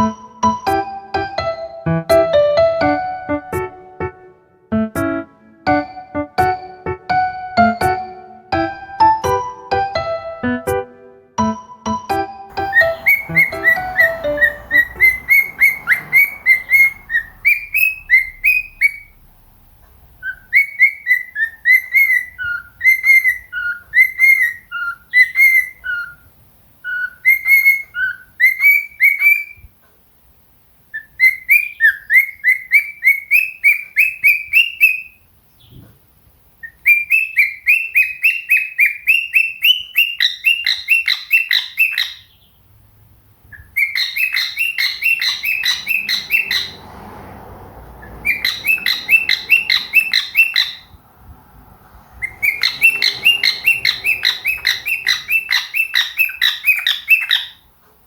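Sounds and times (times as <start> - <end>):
cockatiel whistling: 12.5 - 19.3, 20.2 - 29.7, 30.9 - 35.2, 36.6 - 42.4, 43.5 - 46.9, 48.0 - 51.0, 52.2 - 57.7.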